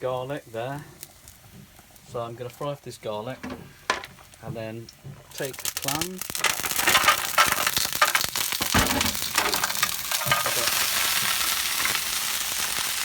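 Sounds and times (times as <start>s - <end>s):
garlic sizzling in oil: 0.0s - 13.0s
stirring in a pan: 0.9s - 12.2s.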